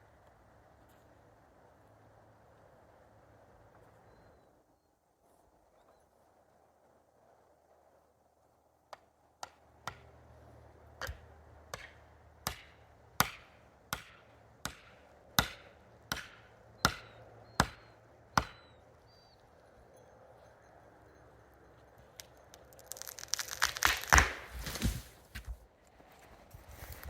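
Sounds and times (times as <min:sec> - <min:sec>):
axe chopping tree trunk: 0:09.4 - 0:10.1, 0:11.0 - 0:18.6, 0:23.5 - 0:25.6.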